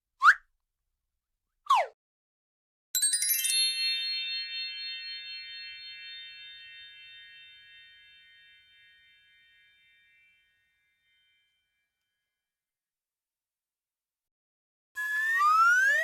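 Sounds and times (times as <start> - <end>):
metal chime ringing: 3.0 - 11.5.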